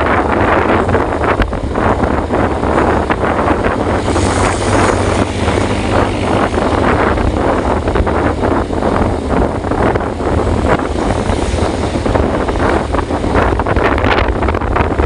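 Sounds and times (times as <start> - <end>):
wind rumble on microphone: 0.0 - 15.0
heavy rain hissing: 2.6 - 14.5.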